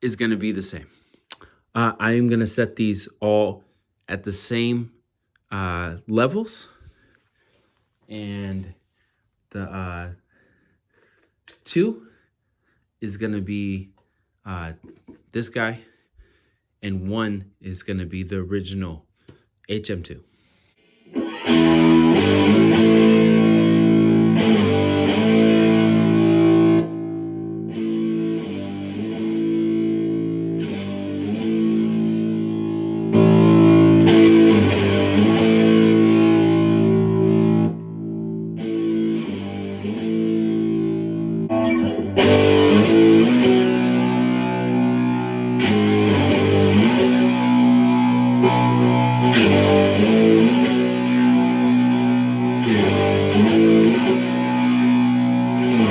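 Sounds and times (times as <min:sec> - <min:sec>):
distorted electric guitar: 0:20.8 - 0:55.9.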